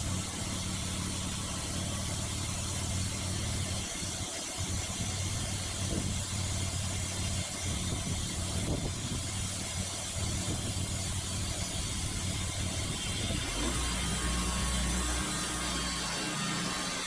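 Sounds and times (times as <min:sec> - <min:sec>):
sawmill engine running: 0:00.0 - 0:17.0.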